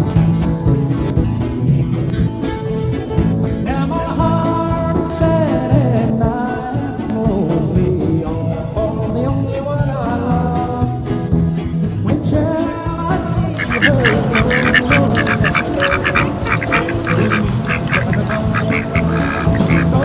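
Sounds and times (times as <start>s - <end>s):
background music: 0.0s - 20.0s
ducks quacking: 13.4s - 20.0s.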